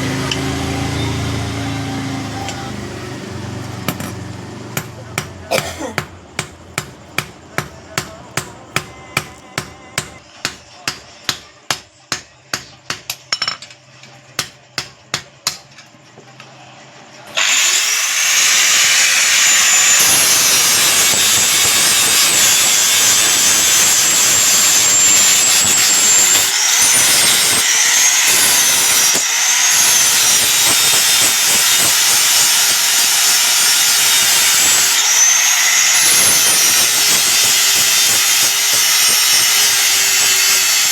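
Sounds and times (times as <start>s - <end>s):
electric grinder whining on steel: 0.0s - 5.3s, 17.3s - 40.9s
hammer striking steel: 3.8s - 13.7s, 14.4s - 15.8s.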